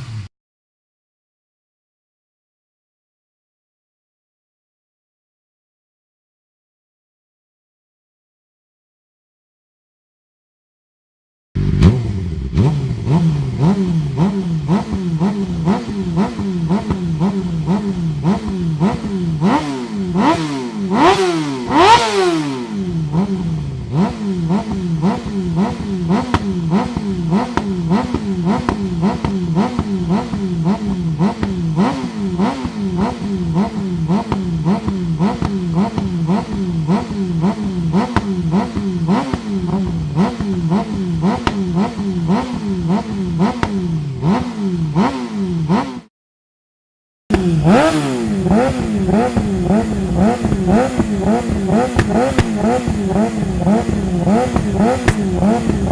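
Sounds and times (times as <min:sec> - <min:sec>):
motorcycle engine idling and revving: 0:00.0 - 0:00.3, 0:11.6 - 0:46.1, 0:47.3 - 0:55.9.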